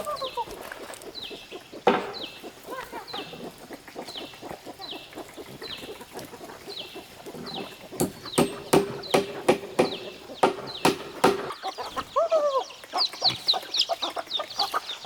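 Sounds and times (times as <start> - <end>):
chickens clucking: 0.0 - 15.0
sharp knock: 8.0 - 11.6.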